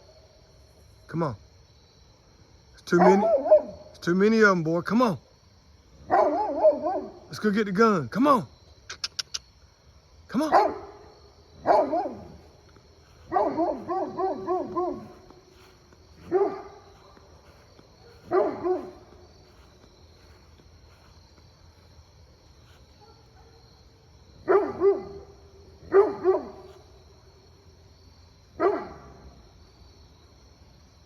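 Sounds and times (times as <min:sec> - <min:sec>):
insects chirring: 0:00.0 - 0:31.0
dog barking: 0:03.0 - 0:03.9, 0:06.0 - 0:07.3, 0:10.4 - 0:12.5, 0:13.2 - 0:19.2, 0:22.9 - 0:23.7, 0:24.4 - 0:26.8, 0:28.6 - 0:29.4.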